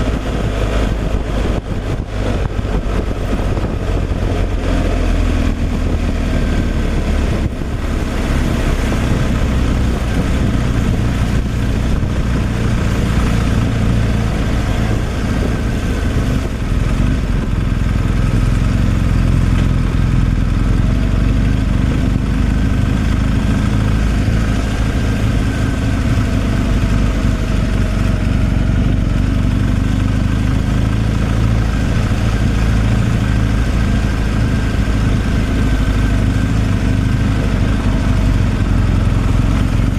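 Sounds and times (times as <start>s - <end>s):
road noise: 0.0s - 39.9s
truck engine running: 0.0s - 39.9s.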